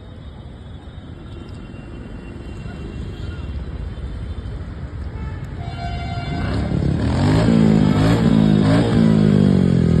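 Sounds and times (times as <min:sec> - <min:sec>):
large vehicle engine revving: 0:06.4 - 0:10.0.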